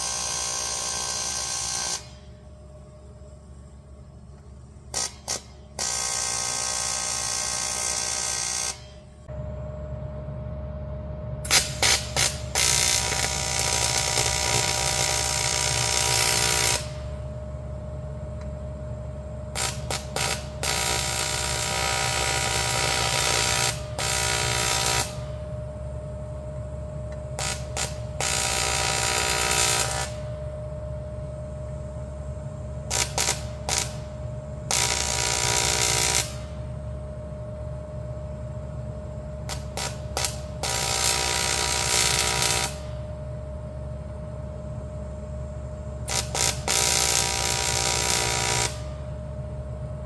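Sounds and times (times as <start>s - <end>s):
arc welding crackle: 0.0s - 2.4s, 4.8s - 9.0s, 11.4s - 17.3s, 19.5s - 25.5s, 27.2s - 30.4s, 32.8s - 36.8s, 39.4s - 43.2s, 46.0s - 49.2s
steady hum: 0.0s - 50.0s.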